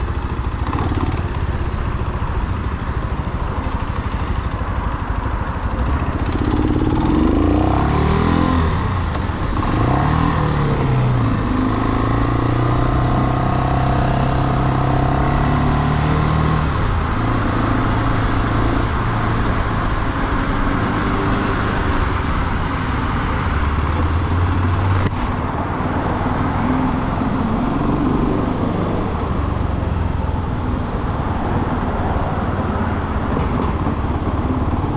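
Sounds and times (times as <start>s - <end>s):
motorcycle engine revving: 0.0s - 1.9s, 5.5s - 30.0s.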